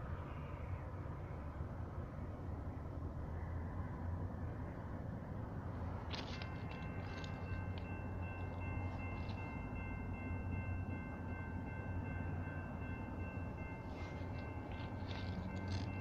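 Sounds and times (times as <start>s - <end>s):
freight train rumbling past: 0.0s - 16.0s
faint high ringing tone: 6.1s - 16.0s.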